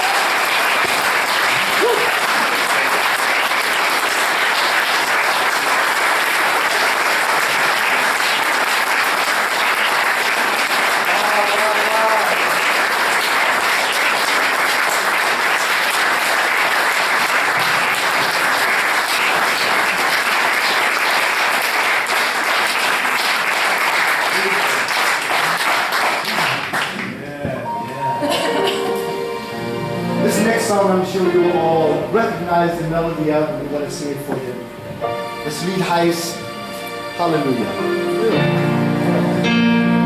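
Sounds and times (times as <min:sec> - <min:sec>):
audience applauding: 0:00.0 - 0:29.1.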